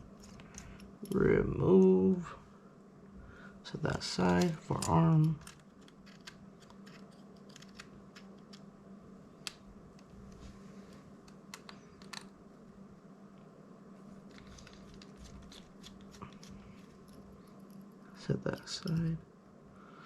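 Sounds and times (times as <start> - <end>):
steady low hum: 0.0 - 20.0
small parts and tools clicking: 0.2 - 1.3, 4.2 - 8.7, 10.9 - 12.4, 14.3 - 19.2.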